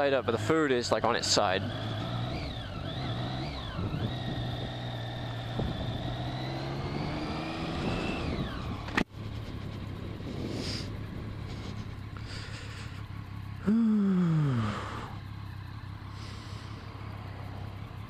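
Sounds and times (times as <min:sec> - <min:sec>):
motorcycle engine pulling away: 0:00.0 - 0:18.0.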